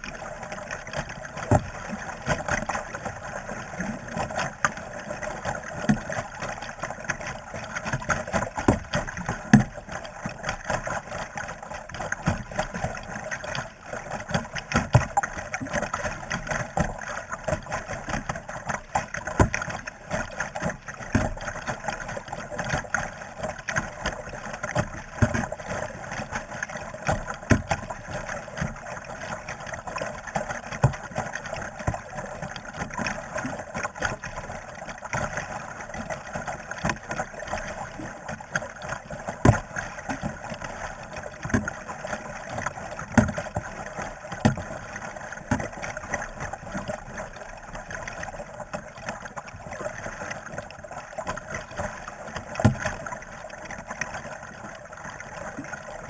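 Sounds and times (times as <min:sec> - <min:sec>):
paddle splashing in water: 0:00.0 - 0:56.0
steady wash of water: 0:00.0 - 0:56.0
paddle knocks: 0:01.4 - 0:02.7, 0:39.4 - 0:40.4, 0:41.4 - 0:41.8, 0:43.1 - 0:43.4, 0:44.4 - 0:44.7, 0:52.6 - 0:53.0.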